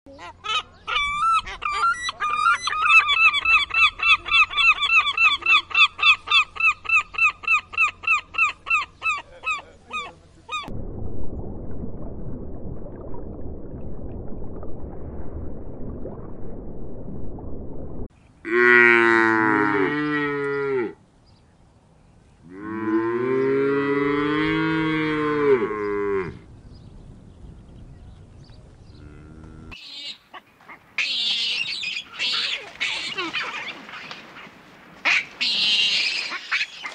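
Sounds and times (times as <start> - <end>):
monkey's high calls: 0.2 - 10.7, 31.0 - 34.5
gulls calling: 29.8 - 36.9.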